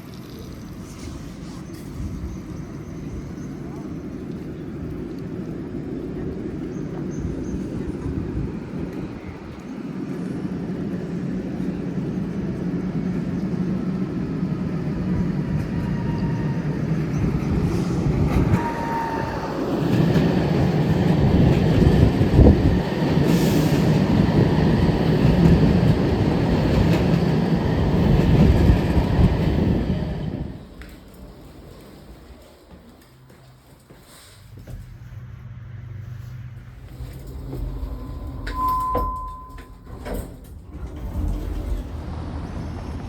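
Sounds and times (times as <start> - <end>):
low rumble: 34.4 - 43.0.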